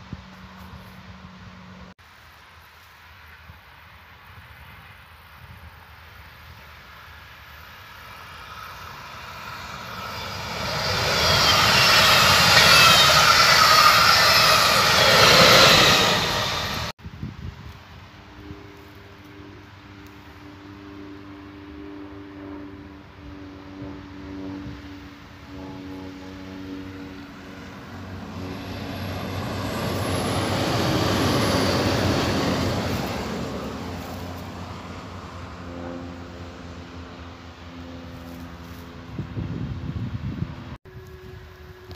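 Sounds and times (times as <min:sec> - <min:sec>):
train wheels rushing on rails: 0:06.8 - 0:17.0, 0:25.6 - 0:36.2
faint falling whines: 0:07.1 - 0:16.9.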